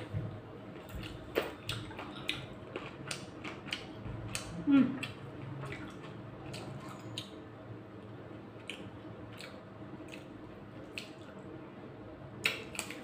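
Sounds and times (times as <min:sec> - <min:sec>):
chewing cracking bones: 0:00.7 - 0:07.4, 0:08.6 - 0:11.4, 0:12.4 - 0:13.0.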